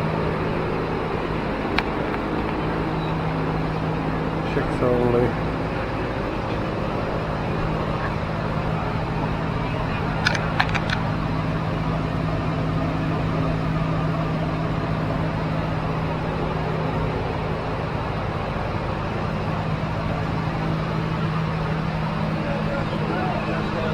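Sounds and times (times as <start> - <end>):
mechanical hum: 0.0 - 23.9
quick sharp clicks: 10.2 - 11.1.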